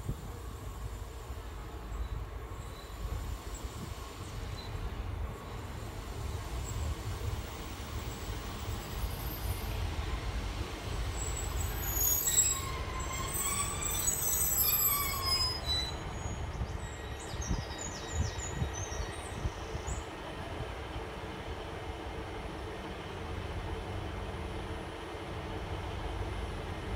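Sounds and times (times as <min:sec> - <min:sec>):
train engine and wheels rumbling: 0:00.0 - 0:26.9
brakes squealing: 0:11.3 - 0:17.2
short high brake squeaks: 0:11.6 - 0:17.4.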